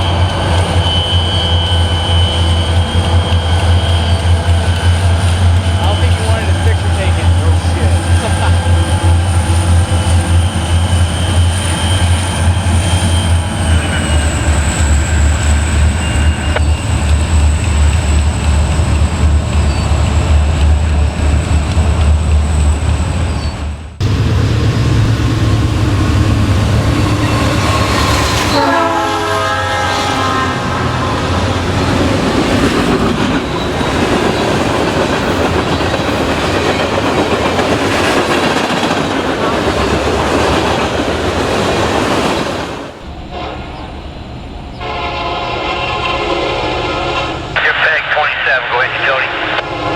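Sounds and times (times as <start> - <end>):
diesel locomotives rumbling past: 0.0 - 49.9
rail cars clattering: 0.0 - 49.9
train air horn: 27.3 - 31.4, 43.2 - 44.0, 44.8 - 47.5, 49.3 - 49.9.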